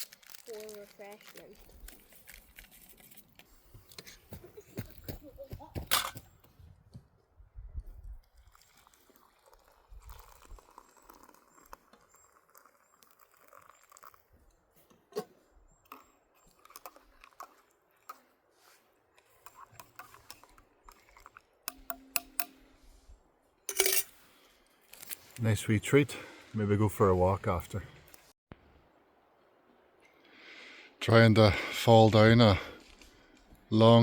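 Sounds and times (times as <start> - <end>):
snack packet crinkling and crunching: 0.0 - 3.6.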